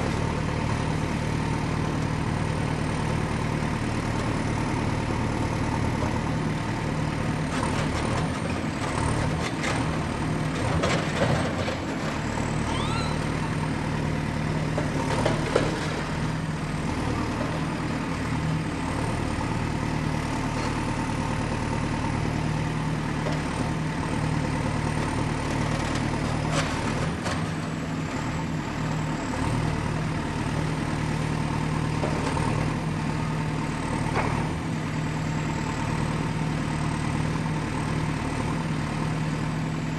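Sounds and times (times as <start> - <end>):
excavator diesel engine running: 0.0 - 39.9
brief squeak: 12.6 - 13.4.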